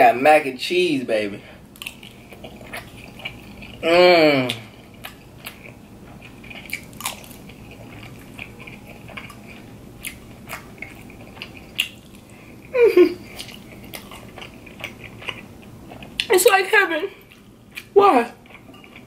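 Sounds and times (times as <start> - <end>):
person humming falling pitch: 3.8 - 4.6.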